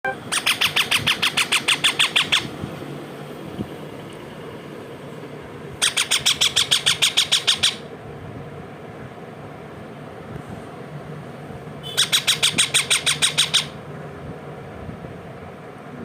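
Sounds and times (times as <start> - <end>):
parrot squawking: 0.1 - 2.5, 5.8 - 7.9, 11.8 - 13.8.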